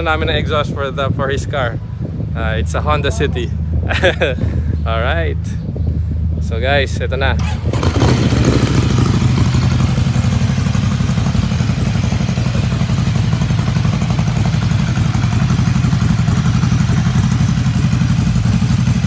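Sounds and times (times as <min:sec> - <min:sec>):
motorcycle engine idling: 0:07.4 - 0:19.0.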